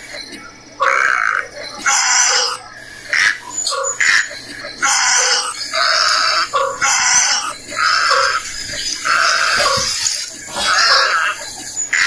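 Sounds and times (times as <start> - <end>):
harsh raspy bird calls: 0.0 - 12.0.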